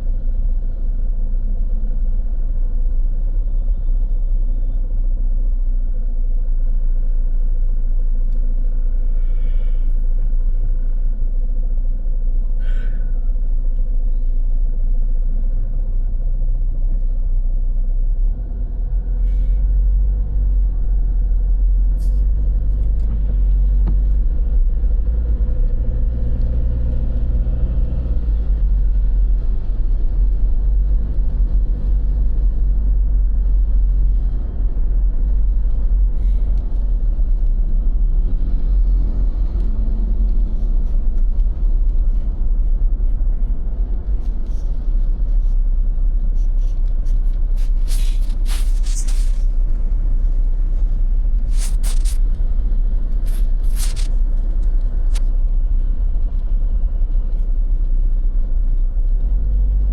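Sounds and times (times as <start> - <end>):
low rumble of road traffic: 0.0 - 59.9.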